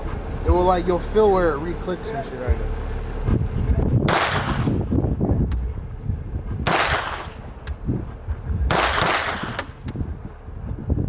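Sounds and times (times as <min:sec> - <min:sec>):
pistol shots echoing: 0:04.1 - 0:04.7, 0:06.7 - 0:07.3, 0:08.7 - 0:09.7.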